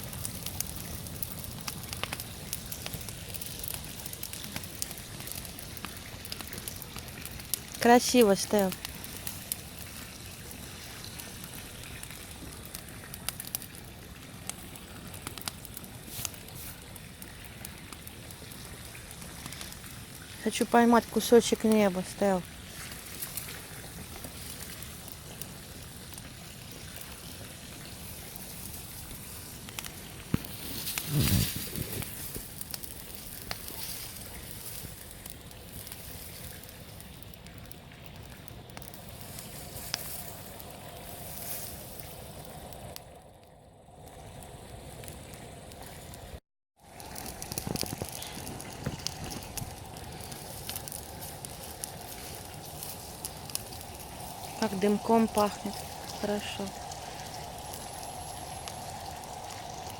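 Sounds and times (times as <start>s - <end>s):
campfire crackling and popping: 0.0s - 59.9s
steady hiss: 48.4s - 59.9s
low rumble: 48.8s - 59.9s.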